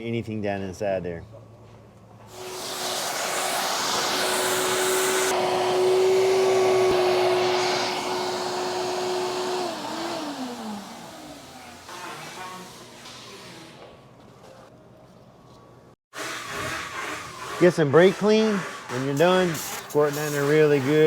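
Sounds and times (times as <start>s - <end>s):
shop vacuum whining: 2.3s - 13.4s.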